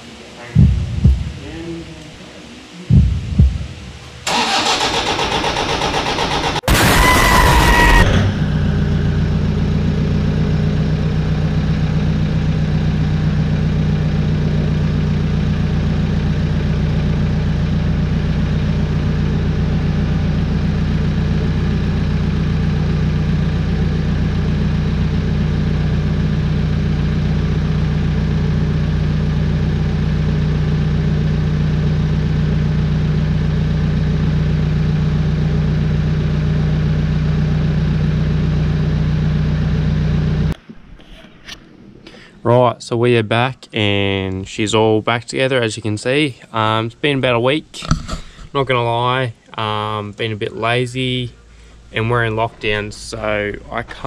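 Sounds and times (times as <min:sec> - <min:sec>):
engine idling: 0:02.9 - 0:40.6
engine cranking on starter: 0:04.2 - 0:08.6.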